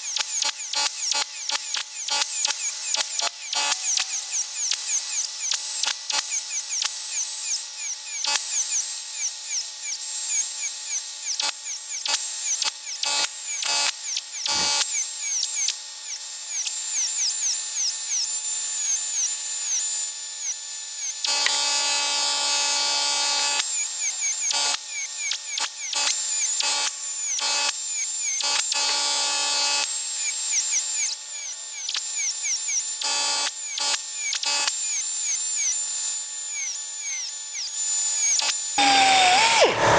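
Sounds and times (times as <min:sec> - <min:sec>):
rotary power tool whining: 0:14.5 - 0:14.8, 0:38.2 - 0:39.9.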